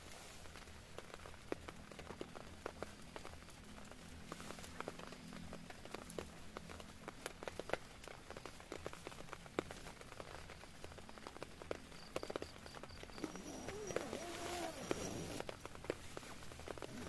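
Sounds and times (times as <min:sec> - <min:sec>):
raindrops tapping on tent fabric: 0:00.0 - 0:17.0
faint hiss: 0:08.2 - 0:17.0.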